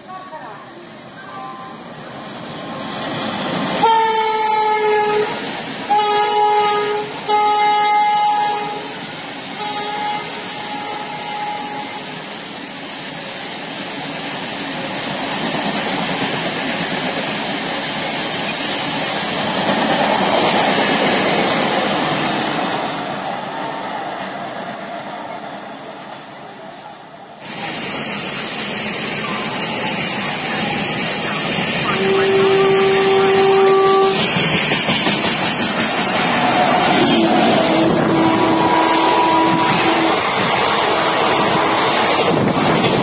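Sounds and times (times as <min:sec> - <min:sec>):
train coaches rumbling on rails: 0:00.0 - 0:43.0
locomotive horn blasts: 0:03.8 - 0:09.0, 0:09.6 - 0:12.1, 0:31.9 - 0:34.3, 0:36.8 - 0:42.3.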